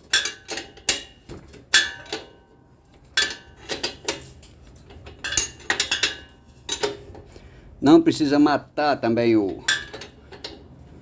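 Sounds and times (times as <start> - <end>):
metal wrench clinking on bolts: 5.2 - 7.0, 9.5 - 10.6.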